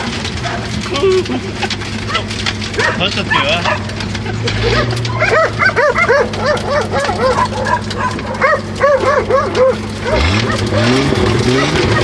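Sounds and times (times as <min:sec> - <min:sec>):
car engine running: 0:00.0 - 0:12.0
dogs barking: 0:00.2 - 0:01.2, 0:02.0 - 0:12.0.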